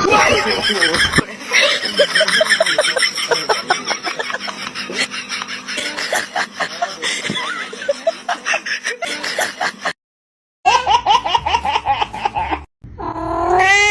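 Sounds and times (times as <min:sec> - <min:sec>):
person laughing: 0:00.0 - 0:10.0.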